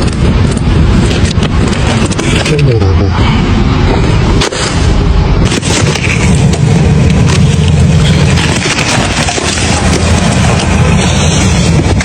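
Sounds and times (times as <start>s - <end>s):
car engine running: 0.0s - 12.0s
wheels spinning on ice: 4.5s - 12.0s
ice cracking: 5.4s - 12.0s.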